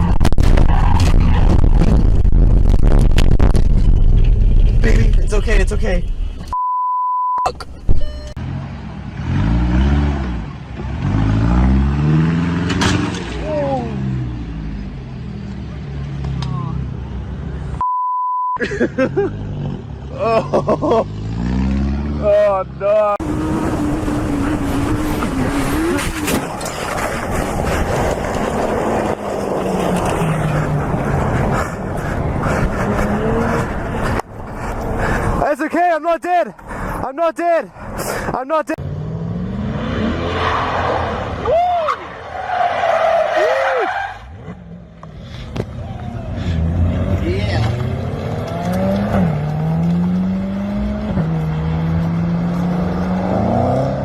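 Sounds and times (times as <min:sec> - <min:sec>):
road and wind noise: 0:00.0 - 0:54.0
car engine accelerating: 0:23.2 - 0:35.4, 0:45.8 - 0:54.0.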